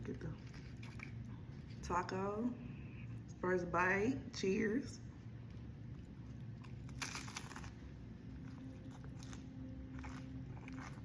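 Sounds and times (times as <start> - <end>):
crunchy taco shell chewing: 0.4 - 1.8, 5.4 - 11.0.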